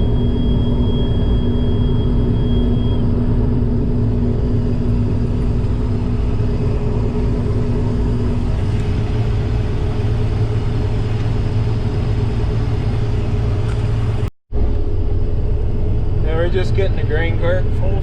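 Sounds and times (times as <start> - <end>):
diesel engine running under load: 0.0 - 18.0
steady whine: 0.0 - 18.0.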